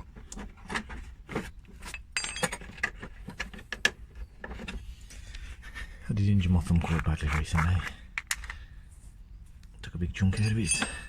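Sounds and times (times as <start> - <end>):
metal tools clinking and rattling: 0.2 - 4.8, 10.2 - 11.0.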